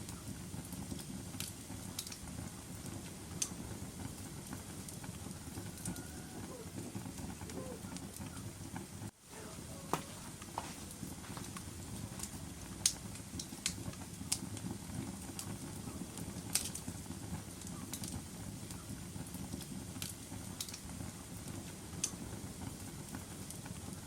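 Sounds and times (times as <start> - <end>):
low rumble of flames: 0.0 - 24.0
wood fire crackling: 0.0 - 24.0.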